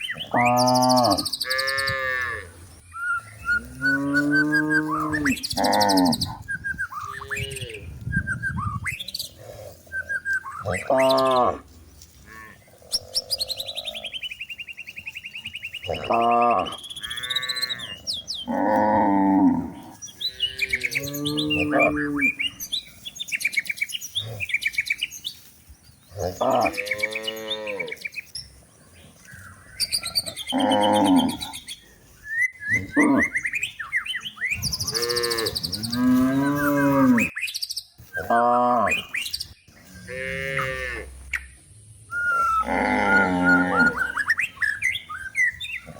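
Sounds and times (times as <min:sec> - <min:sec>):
birds chirping: 0:00.0 - 0:45.9
cows mooing: 0:00.2 - 0:02.6, 0:03.5 - 0:08.0, 0:10.6 - 0:14.2, 0:15.8 - 0:22.7, 0:26.2 - 0:28.0, 0:30.0 - 0:31.7, 0:34.6 - 0:37.3, 0:40.0 - 0:41.2, 0:42.4 - 0:44.2.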